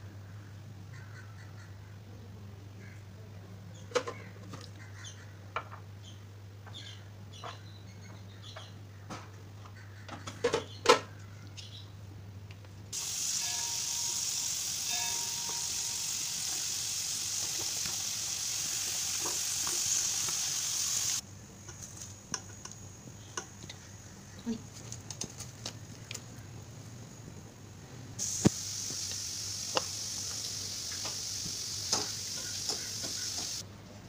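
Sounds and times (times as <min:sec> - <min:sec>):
potatoes sizzling in hot oil: 0:13.0 - 0:21.2, 0:28.2 - 0:33.6.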